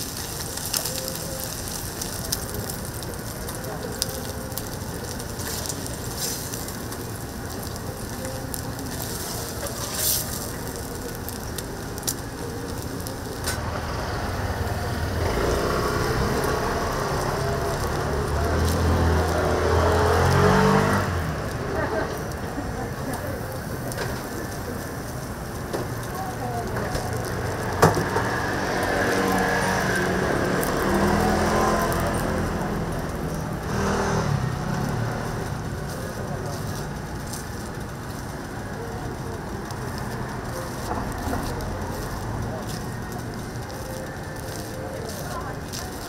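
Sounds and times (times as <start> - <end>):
food sizzling on a griddle: 0.0 - 46.0.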